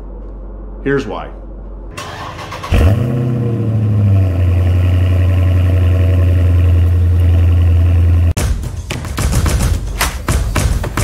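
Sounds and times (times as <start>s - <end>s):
car engine starting and idling: 1.9s - 8.4s.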